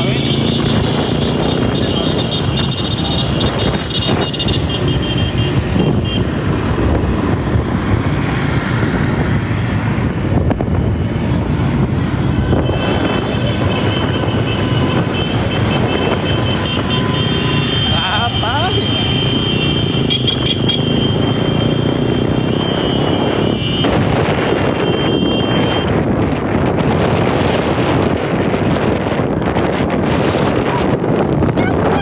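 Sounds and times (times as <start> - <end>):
motorcycle engines running: 0.0 - 32.0.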